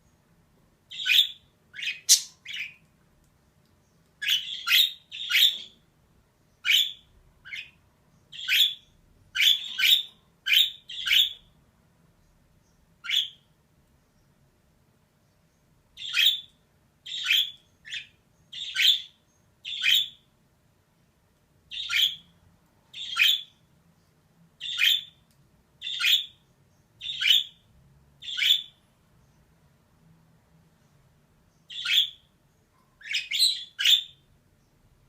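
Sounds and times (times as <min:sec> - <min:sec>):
budgerigar harsh chirping calls: 0:00.9 - 0:02.8, 0:04.2 - 0:05.8, 0:06.6 - 0:08.8, 0:09.4 - 0:11.4, 0:13.0 - 0:13.4, 0:16.0 - 0:16.5, 0:17.1 - 0:20.2, 0:21.7 - 0:22.3, 0:23.0 - 0:23.6, 0:24.6 - 0:25.2, 0:25.8 - 0:26.4, 0:27.0 - 0:27.6, 0:28.2 - 0:28.8, 0:31.7 - 0:32.3, 0:33.0 - 0:34.3.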